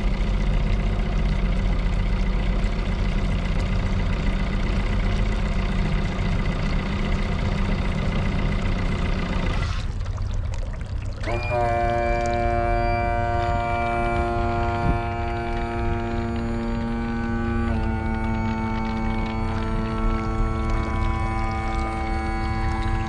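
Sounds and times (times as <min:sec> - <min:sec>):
outboard engine idling: 0:00.0 - 0:23.0
water sound: 0:00.0 - 0:23.0
steady music tones: 0:12.2 - 0:23.0.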